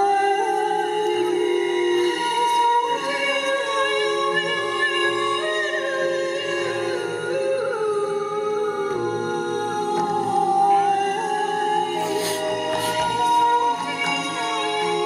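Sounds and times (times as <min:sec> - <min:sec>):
breathy hiss: 0:11.9 - 0:14.2.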